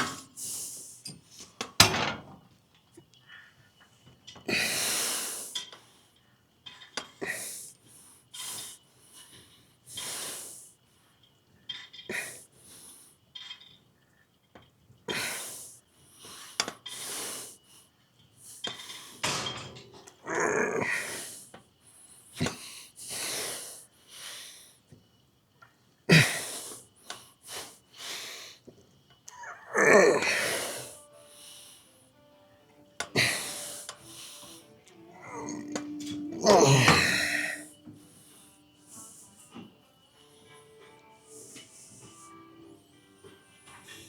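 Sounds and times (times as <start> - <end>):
man breathing hard: 7.2 - 10.7, 22.4 - 24.8, 29.8 - 32.0, 33.0 - 39.7.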